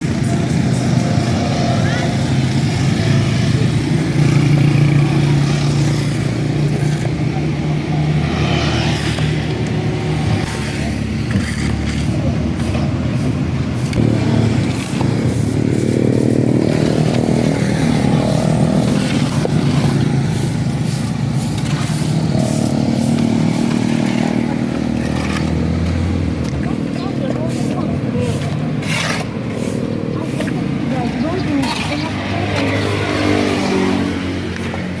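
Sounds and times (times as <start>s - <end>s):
clicks and scrapes: 10.4s - 12.9s, 21.0s - 30.6s.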